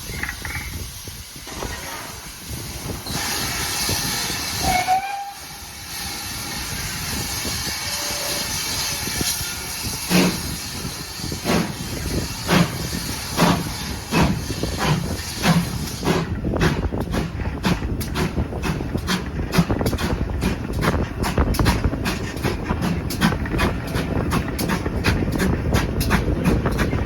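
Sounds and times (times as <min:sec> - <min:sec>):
steam locomotive hissing: 0:00.0 - 0:27.0
locomotive exhaust chuffs: 0:03.0 - 0:27.0
steam whistle: 0:04.6 - 0:05.6.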